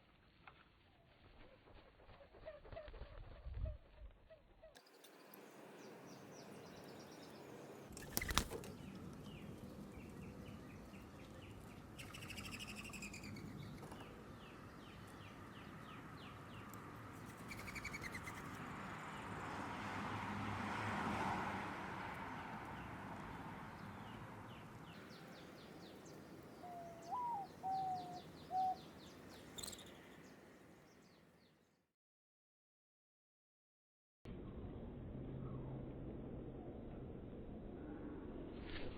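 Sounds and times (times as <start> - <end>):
small birds chirping: 4.7 - 18.6, 23.8 - 31.6
low whistled bird notes: 26.6 - 28.9.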